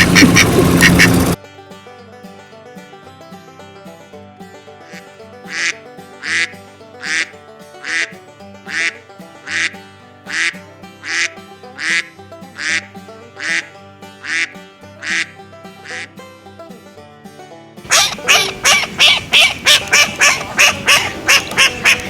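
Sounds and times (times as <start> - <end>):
duck quacking: 0.0 - 1.4, 4.8 - 16.2, 17.8 - 22.0
background music: 0.0 - 22.0.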